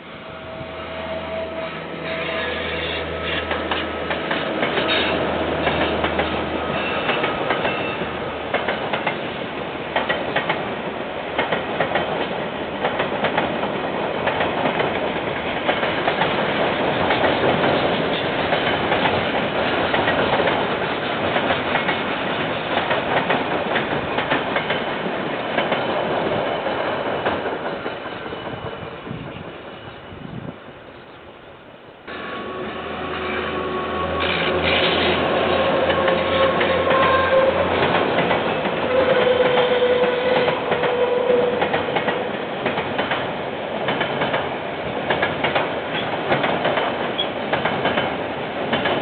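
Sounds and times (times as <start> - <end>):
wagon wheels clacking over rail joints: 34.3 - 49.0.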